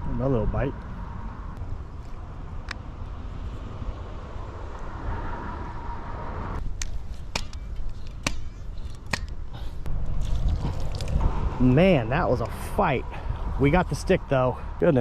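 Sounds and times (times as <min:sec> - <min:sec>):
steady low rumble: 0:09.2 - 0:15.0.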